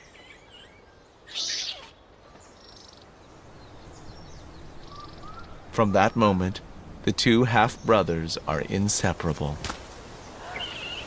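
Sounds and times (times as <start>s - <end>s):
faint high chirping calls: 0.0s - 6.8s, 10.2s - 11.0s.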